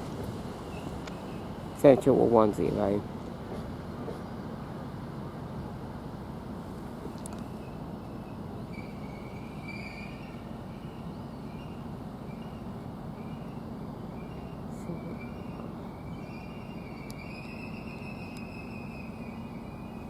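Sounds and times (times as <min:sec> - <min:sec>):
electric train rumbling: 0:00.0 - 0:20.0
high brake squeal: 0:07.5 - 0:12.6, 0:14.2 - 0:20.0.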